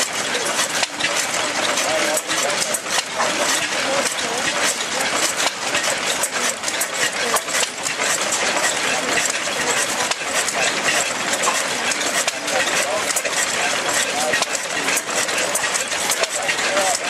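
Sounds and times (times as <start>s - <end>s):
oil engine clattering: 0.0s - 17.0s.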